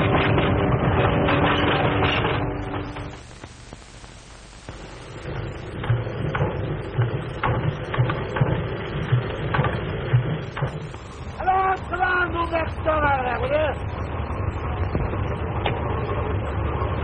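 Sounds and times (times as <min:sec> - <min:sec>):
steady sustained tone: 0:00.0 - 0:07.9
soundtrack hiss: 0:02.2 - 0:16.7
clattering knocks and thuds: 0:05.4 - 0:11.3, 0:14.9 - 0:15.8.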